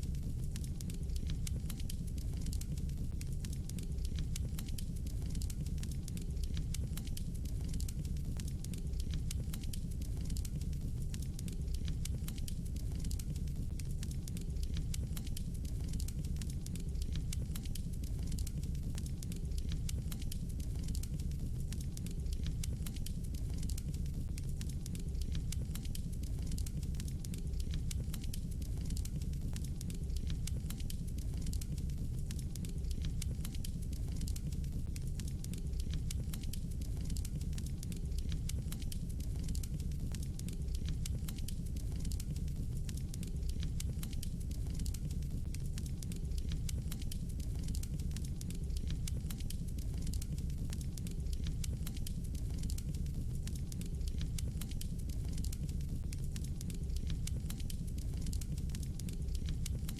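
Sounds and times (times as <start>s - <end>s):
fire crackling and popping: 0.0s - 59.9s
low rumble of flames: 0.0s - 59.9s.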